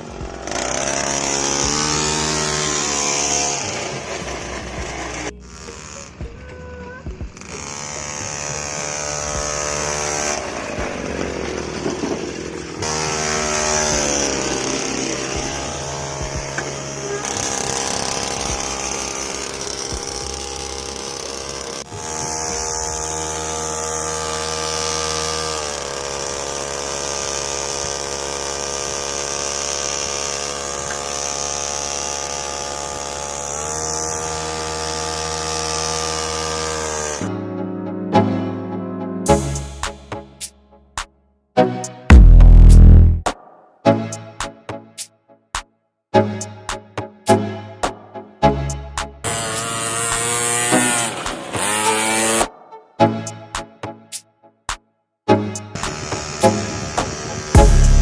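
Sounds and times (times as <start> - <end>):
small motor whining under load: 0.0 - 37.2, 49.3 - 52.5, 55.8 - 58.0.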